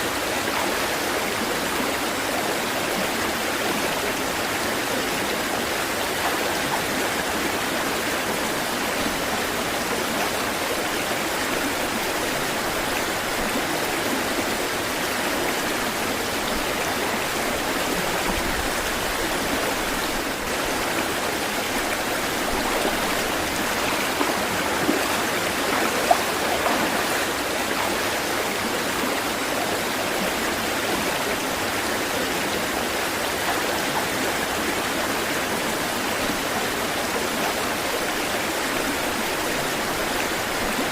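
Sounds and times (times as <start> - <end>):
water rushing: 0.0 - 40.9
water splashes: 5.5 - 29.6.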